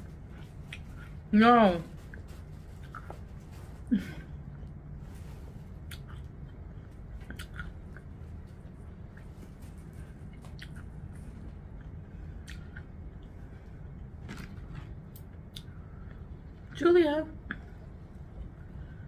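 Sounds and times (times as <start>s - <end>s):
person chewing: 0.0s - 1.3s, 2.1s - 3.4s, 5.8s - 9.3s, 10.3s - 16.3s
low steady hum: 0.0s - 19.0s.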